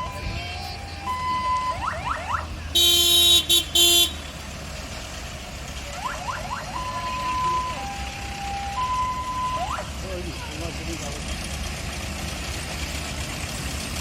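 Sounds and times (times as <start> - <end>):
low rumble of engines: 0.0 - 14.0
electronic horns beeping: 2.8 - 4.4
vehicle horn blasts: 2.8 - 4.4.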